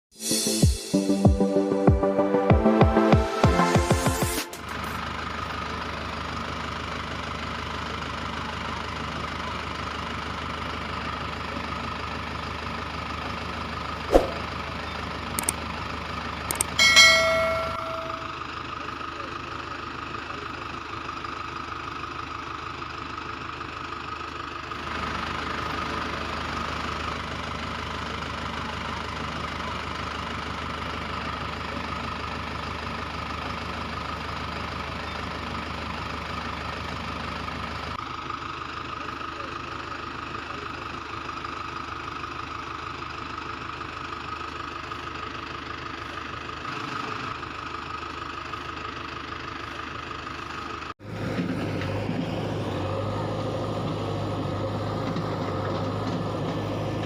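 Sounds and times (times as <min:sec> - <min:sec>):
sharp clicks: 0:15.4 - 0:15.6, 0:16.5 - 0:16.8
brief metallic ring: 0:16.5 - 0:18.4.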